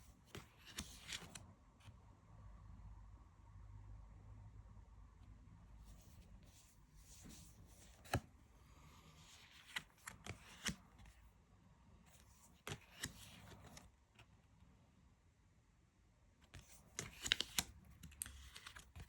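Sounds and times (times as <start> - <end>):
cards sliding and swishing: 0.3 - 1.4, 5.9 - 11.2, 12.2 - 13.9, 16.6 - 19.0
cards snapping and tapping: 17.0 - 19.0.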